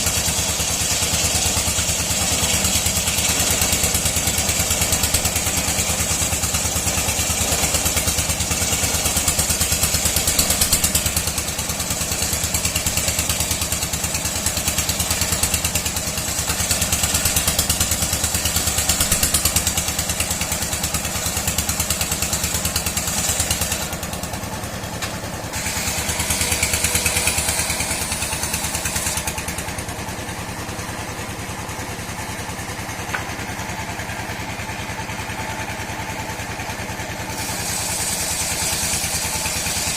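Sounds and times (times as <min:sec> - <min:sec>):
engine-driven saw running: 0:00.0 - 0:39.9
high saw whine: 0:25.5 - 0:29.4, 0:37.3 - 0:39.9.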